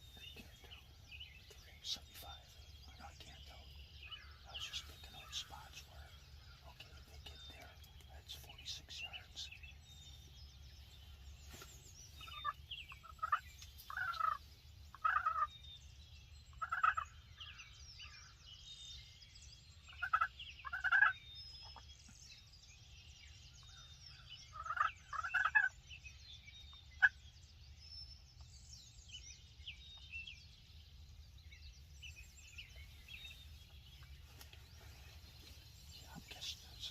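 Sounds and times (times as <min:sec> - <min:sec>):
turkeys gobbling: 0:12.2 - 0:15.5, 0:16.6 - 0:17.0, 0:19.9 - 0:21.8, 0:24.5 - 0:25.7.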